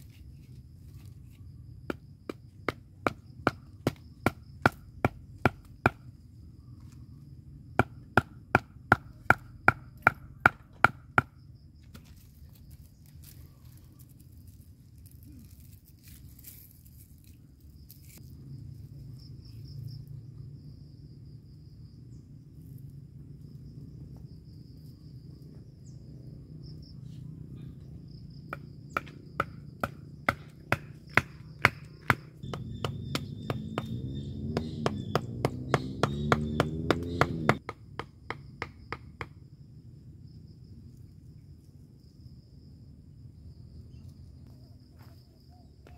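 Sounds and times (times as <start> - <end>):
insects chirring: 0.0 - 45.9
tent pegs being hammered: 1.9 - 6.1, 7.8 - 11.4, 28.5 - 39.4.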